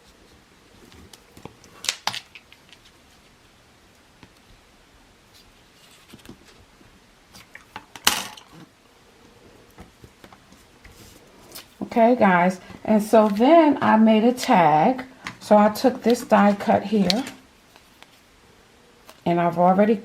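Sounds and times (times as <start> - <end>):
paper scrape or rustle: 5.3 - 6.6.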